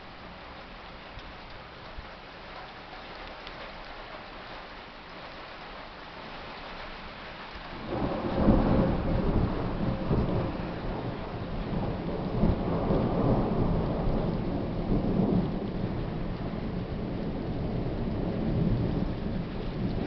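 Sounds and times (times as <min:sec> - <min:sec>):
steady rain: 0:00.0 - 0:20.0
thunder rumbling: 0:07.7 - 0:20.0.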